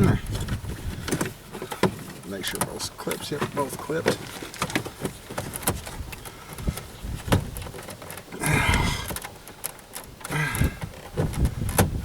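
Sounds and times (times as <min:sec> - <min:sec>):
plastic scraping noise: 0:00.0 - 0:12.0.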